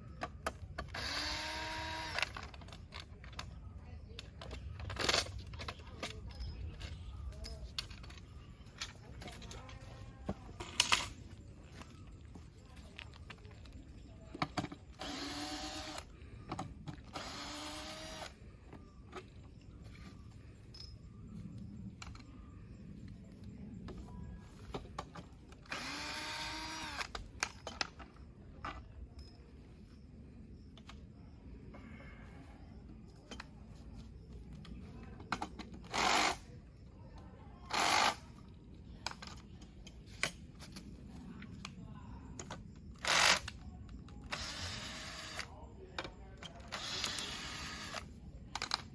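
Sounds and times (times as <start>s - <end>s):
power drill whirring: 0.9s - 2.4s, 15.0s - 16.1s, 17.1s - 18.3s, 25.7s - 27.1s, 44.3s - 45.5s, 46.7s - 48.0s.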